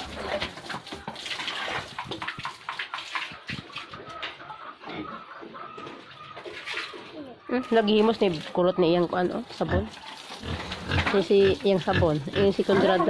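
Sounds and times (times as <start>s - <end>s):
water splashing and pouring: 0.0s - 4.2s, 9.4s - 13.0s.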